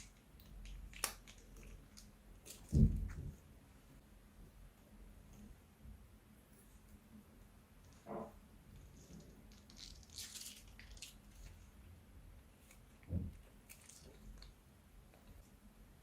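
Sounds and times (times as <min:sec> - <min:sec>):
slime crackling and squishing: 0:09.0 - 0:11.7.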